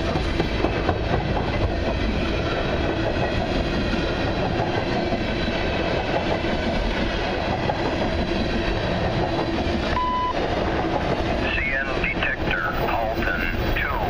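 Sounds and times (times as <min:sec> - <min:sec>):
freight train wheels rumbling: 0:00.0 - 0:14.0
short steady beep: 0:10.0 - 0:10.4.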